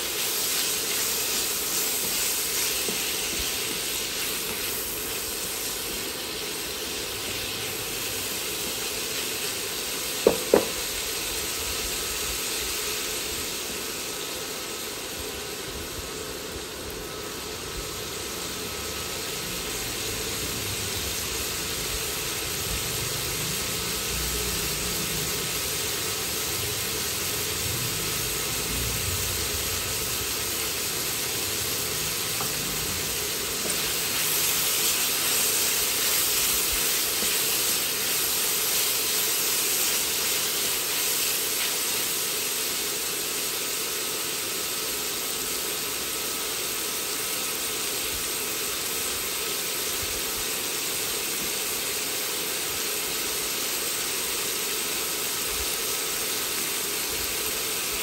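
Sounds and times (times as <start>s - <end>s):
vegetables and meat frying in oil: 0.0s - 58.0s.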